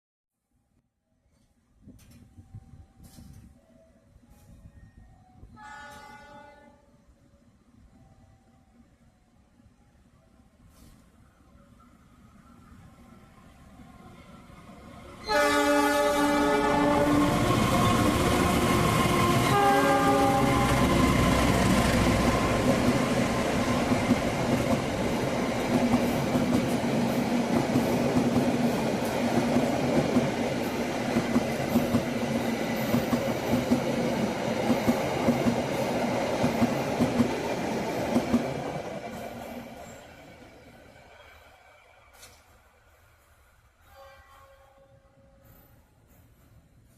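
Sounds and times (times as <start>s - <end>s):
train horn blasts: 5.6s - 7.0s, 15.2s - 22.6s, 43.8s - 45.4s
train rushing past: 12.3s - 43.8s.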